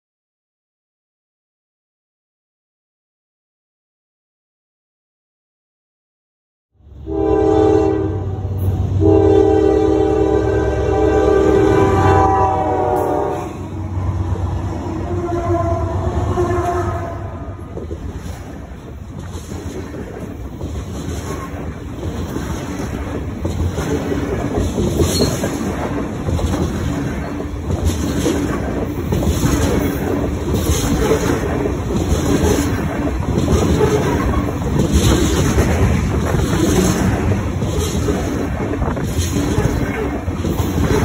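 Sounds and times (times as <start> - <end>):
train wheels rumbling on rail: 6.9 - 41.0
wheels clacking over rail joints: 17.6 - 41.0.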